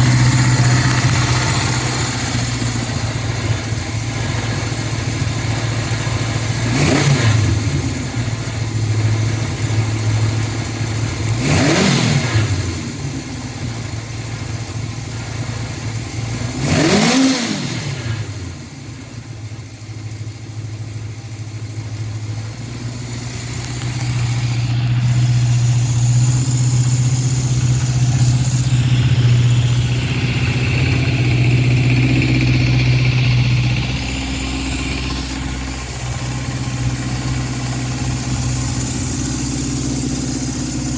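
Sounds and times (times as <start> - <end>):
motorcycle engine idling and revving: 0.0 - 40.9.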